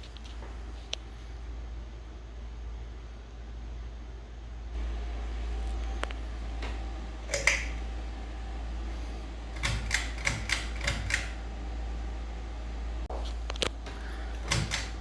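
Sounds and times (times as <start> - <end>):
ceiling fan humming: 0.0 - 15.0
sharp clicks: 7.3 - 7.8.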